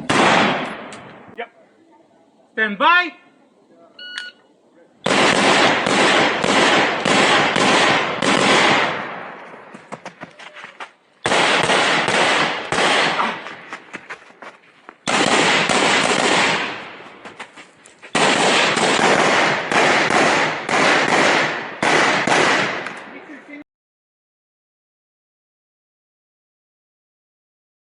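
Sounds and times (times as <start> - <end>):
rifle gunshots echoing: 0.0 - 1.3, 5.0 - 9.7, 11.2 - 13.4, 15.0 - 17.1, 18.1 - 23.1.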